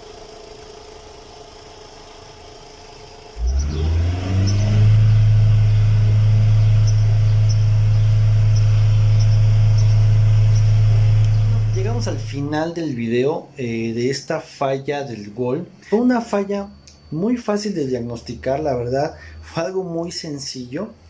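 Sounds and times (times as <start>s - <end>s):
car engine revving: 3.4s - 12.6s.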